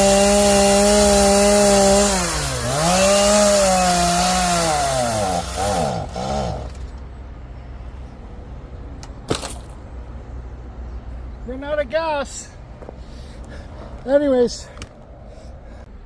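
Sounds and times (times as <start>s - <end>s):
chainsaw engine bogging and sputtering: 0.0s - 7.0s.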